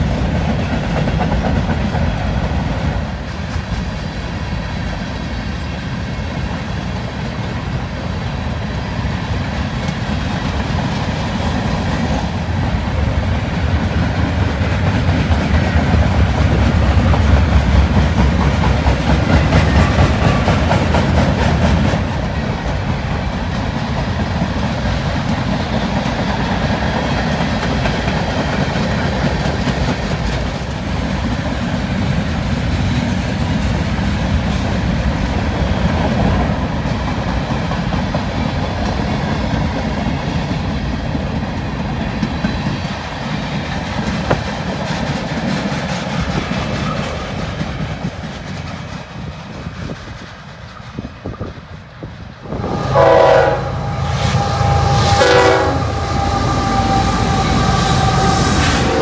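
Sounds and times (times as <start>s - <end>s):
train wheels clattering over rail joints: 0.0s - 52.2s.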